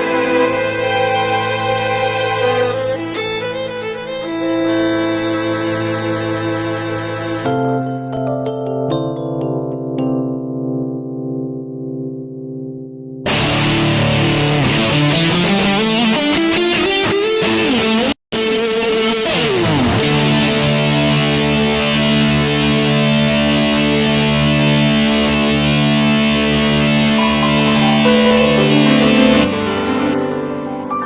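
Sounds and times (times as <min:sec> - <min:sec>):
distorted electric guitar keyboard: 0:10.9 - 0:30.9.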